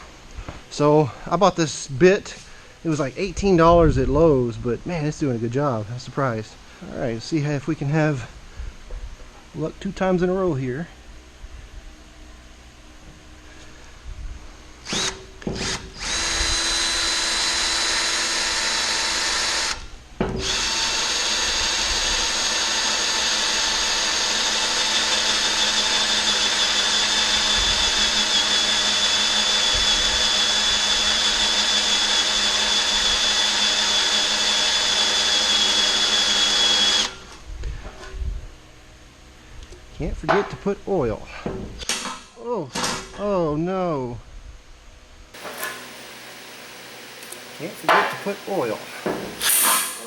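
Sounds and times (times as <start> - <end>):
power drill boring through metal: 14.9 - 19.8, 20.4 - 37.2, 45.4 - 50.0.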